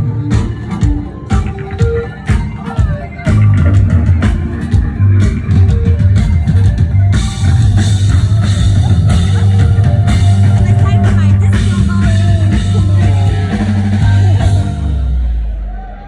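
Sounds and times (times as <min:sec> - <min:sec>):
live rock band playing: 0:00.0 - 0:15.9
drum kit with cymbals: 0:00.0 - 0:16.0.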